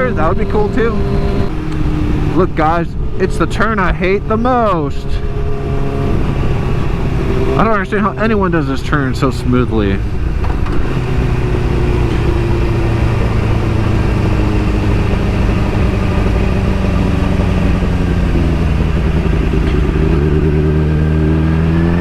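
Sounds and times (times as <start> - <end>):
motorcycle engine running: 0.0 - 22.0
wind noise on microphone: 5.1 - 7.6.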